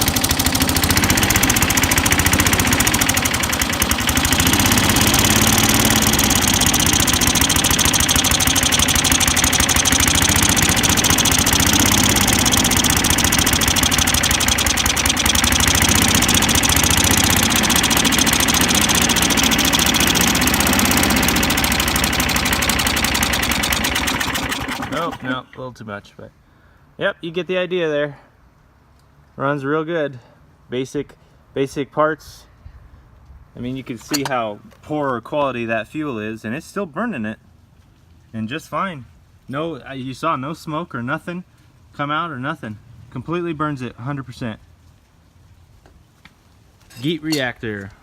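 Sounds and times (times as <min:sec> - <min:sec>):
lawnmower engine running: 0:00.0 - 0:25.6, 0:46.9 - 0:48.0.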